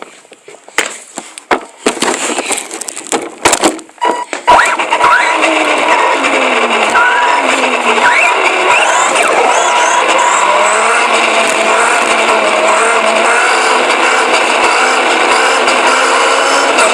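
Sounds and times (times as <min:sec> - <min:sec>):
toy car motor whining: 0:04.1 - 0:16.9.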